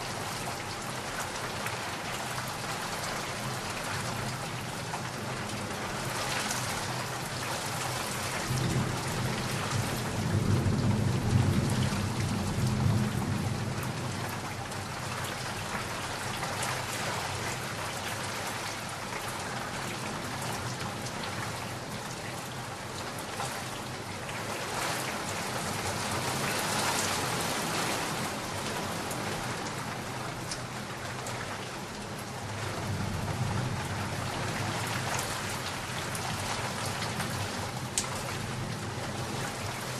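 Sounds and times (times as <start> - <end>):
heavy rain: 0.0 - 39.9
rumble of thunder: 8.3 - 14.9, 32.5 - 37.8.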